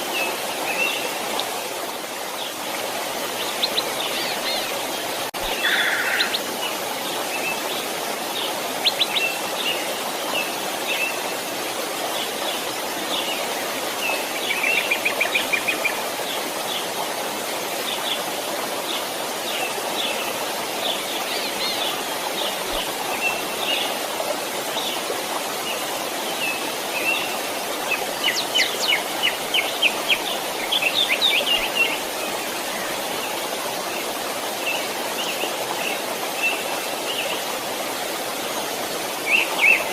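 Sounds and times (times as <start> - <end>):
flowing stream: 0.0 - 39.9
songbirds chirping and trilling: 2.2 - 11.2.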